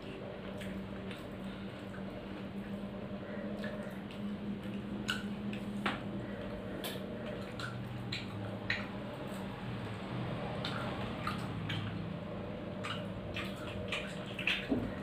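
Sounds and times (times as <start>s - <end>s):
wet chewing and mouth smacks: 0.0s - 2.8s, 3.5s - 9.5s, 10.5s - 12.1s, 12.8s - 14.9s
steady low hum: 0.0s - 15.0s.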